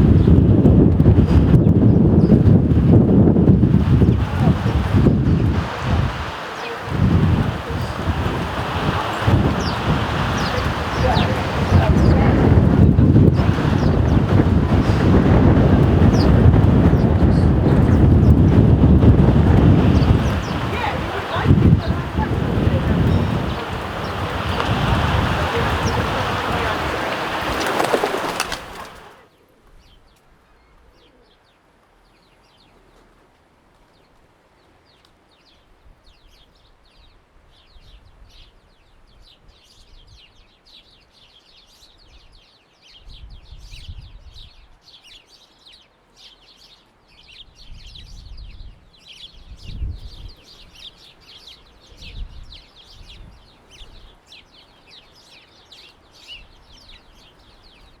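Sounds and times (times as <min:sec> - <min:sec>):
sparrows chirping: 0:00.0 - 0:32.9, 0:34.9 - 0:58.0
low rumbles: 0:06.9 - 0:29.1.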